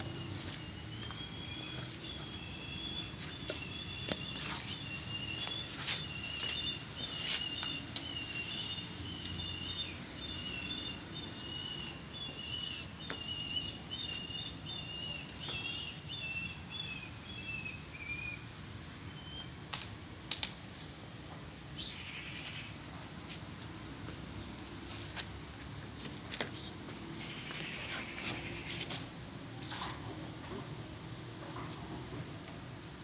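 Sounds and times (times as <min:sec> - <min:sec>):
small bird chirping: 0:00.0 - 0:18.5.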